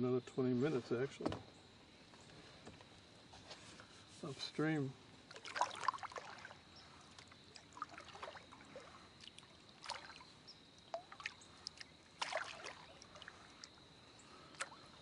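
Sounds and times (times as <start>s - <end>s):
kayak paddle splashing in water: 5.2s - 13.8s.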